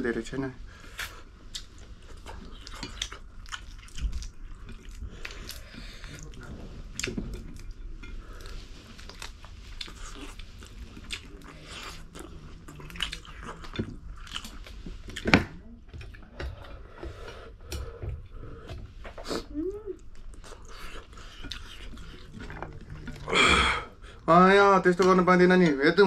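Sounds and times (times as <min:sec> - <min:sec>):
close chewing and biting: 0:00.9 - 0:16.8, 0:18.7 - 0:23.4.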